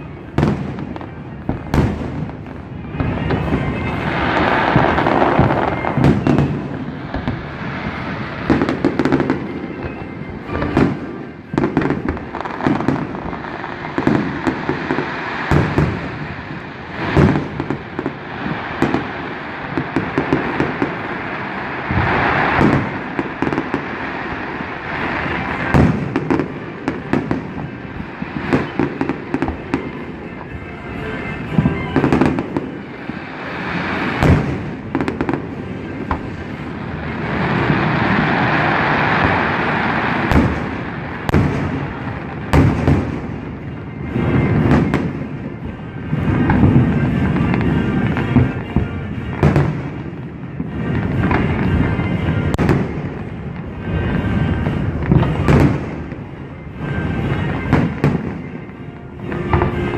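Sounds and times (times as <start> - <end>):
fireworks bangs: 0.0 - 59.9.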